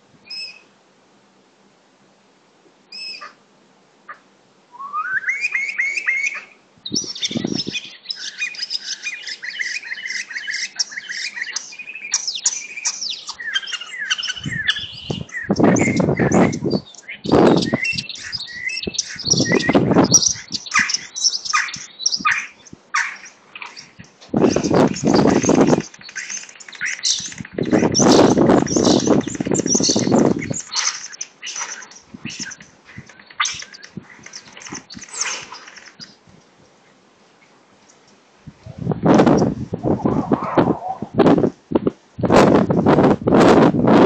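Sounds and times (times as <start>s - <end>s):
birds singing and chirping: 0.3s - 0.6s, 2.9s - 3.3s, 4.8s - 36.2s.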